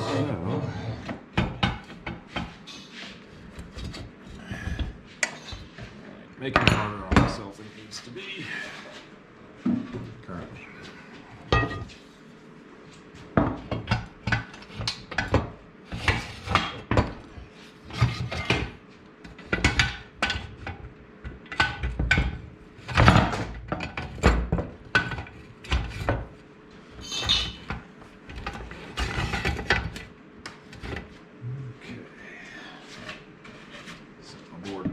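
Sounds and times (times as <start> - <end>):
metal clanks and knocks: 11.5 - 12.0.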